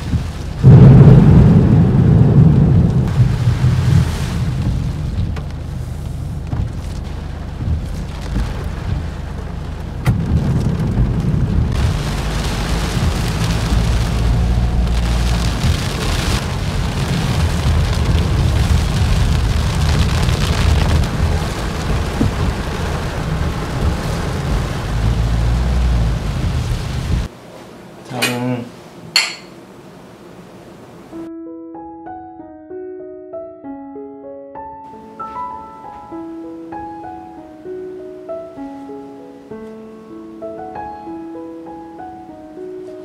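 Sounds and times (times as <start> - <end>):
heavy rain on a windscreen: 0.0 - 27.3
steady low rumble: 0.0 - 27.3.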